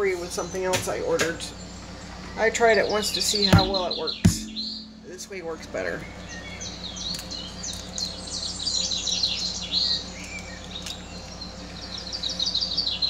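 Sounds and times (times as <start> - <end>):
low hum: 3.6 - 6.2.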